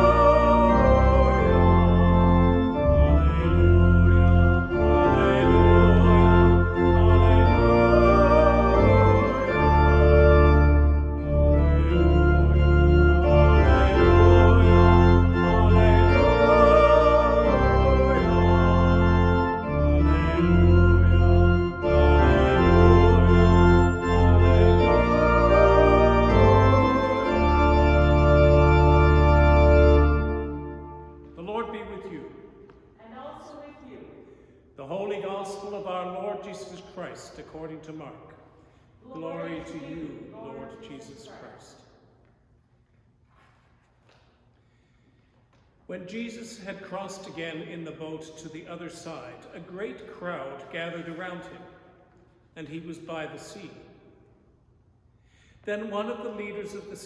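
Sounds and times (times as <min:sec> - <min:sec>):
organ playing sustained chords: 0:00.0 - 0:32.3, 0:39.1 - 0:41.2.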